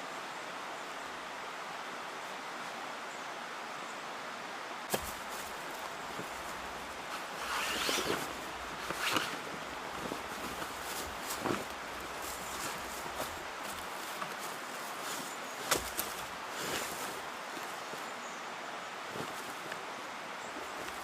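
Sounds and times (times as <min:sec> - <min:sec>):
outdoor background hiss: 0:00.0 - 0:21.0
rustling and crunching: 0:04.9 - 0:18.2, 0:19.0 - 0:21.0.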